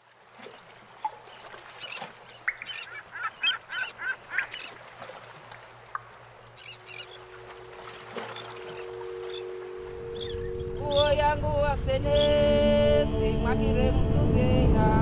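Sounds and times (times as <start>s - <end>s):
bird harsh calls: 0.9s - 4.8s, 6.6s - 7.3s, 8.2s - 11.0s.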